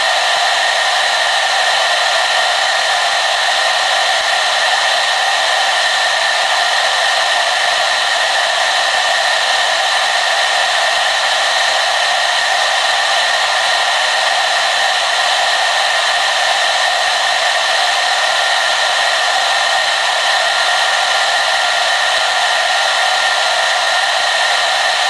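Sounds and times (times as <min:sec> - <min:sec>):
hair dryer running: 0:00.0 - 0:25.0.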